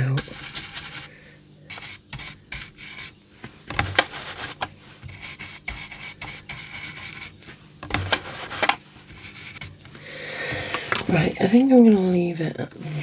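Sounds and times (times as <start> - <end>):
brush scrubbing on card: 0.0 - 1.1, 1.7 - 9.8.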